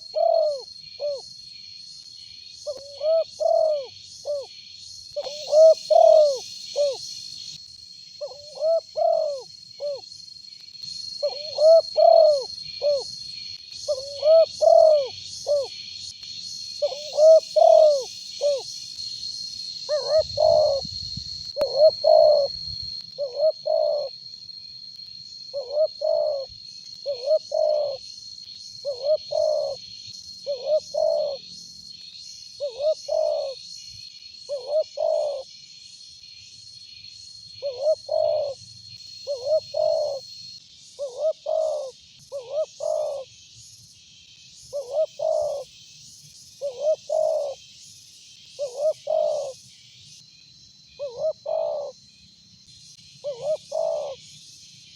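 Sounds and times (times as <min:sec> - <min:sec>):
dove cooing: 0:00.0 - 0:01.2, 0:02.7 - 0:04.5, 0:05.2 - 0:07.0, 0:08.2 - 0:10.0, 0:11.2 - 0:13.1, 0:13.9 - 0:15.7, 0:16.8 - 0:18.6, 0:19.9 - 0:20.9, 0:21.6 - 0:22.6, 0:23.2 - 0:24.1, 0:25.6 - 0:28.0, 0:28.8 - 0:29.8, 0:30.5 - 0:31.4, 0:32.6 - 0:33.6, 0:34.5 - 0:35.4, 0:37.6 - 0:38.6, 0:39.3 - 0:40.2, 0:41.0 - 0:43.3, 0:44.7 - 0:45.6, 0:46.6 - 0:47.6, 0:48.6 - 0:49.6, 0:51.0 - 0:51.9, 0:53.2 - 0:54.2.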